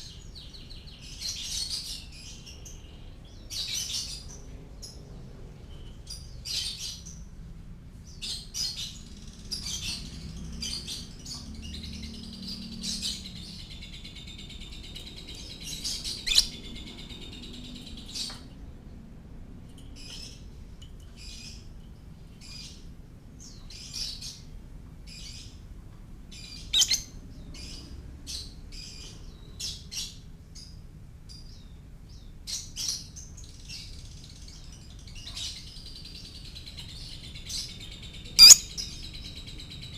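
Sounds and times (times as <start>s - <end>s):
lovebird chirping and chattering: 10.6s - 18.3s, 26.4s - 27.7s, 38.3s - 39.1s.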